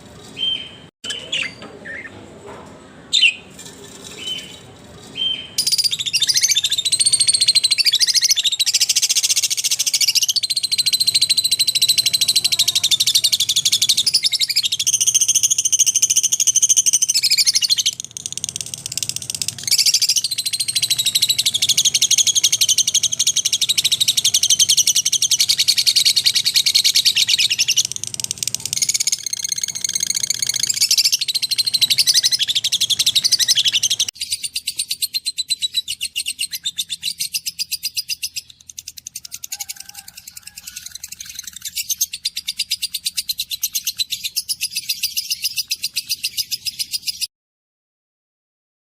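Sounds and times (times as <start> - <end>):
lovebirds chirping: 0.2 - 2.2, 3.0 - 15.4.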